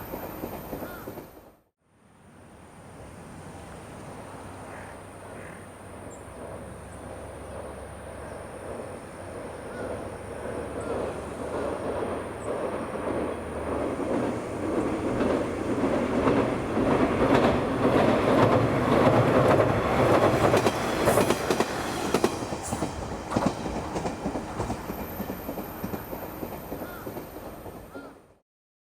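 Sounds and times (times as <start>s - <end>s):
train wheels clattering over joints: 9.8s - 28.1s.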